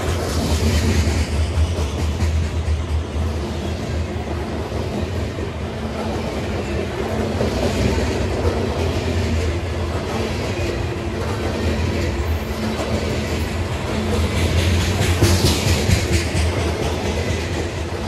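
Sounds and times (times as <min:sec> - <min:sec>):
diesel locomotive engine drone: 0:00.0 - 0:18.0
steel wheels clicking over rails: 0:04.4 - 0:18.0.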